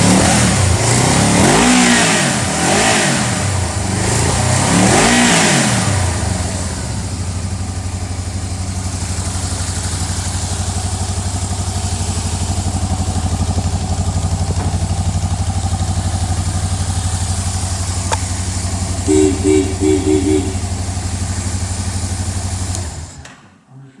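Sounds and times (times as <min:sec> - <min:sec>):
motorcycle engine idling: 0:00.0 - 0:23.2
short beeps: 0:19.1 - 0:20.6.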